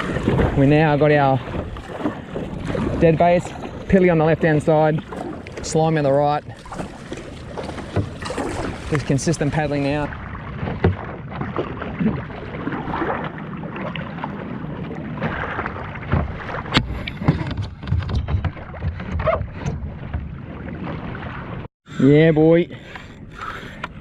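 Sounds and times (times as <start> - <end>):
wind on microphone: 0.0 - 4.5
paddle splashes and knocks: 0.0 - 21.7
water noise: 0.0 - 24.0.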